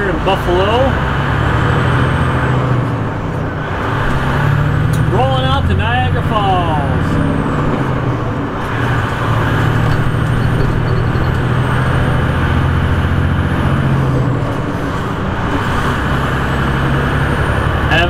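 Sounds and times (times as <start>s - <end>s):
diesel truck engine droning: 0.0s - 18.0s.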